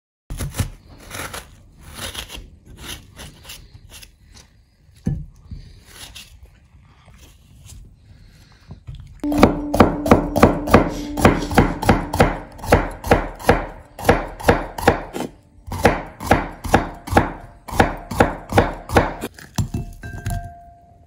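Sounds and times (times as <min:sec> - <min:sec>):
cleaver chopping on wooden board: 0:09.2 - 0:19.3.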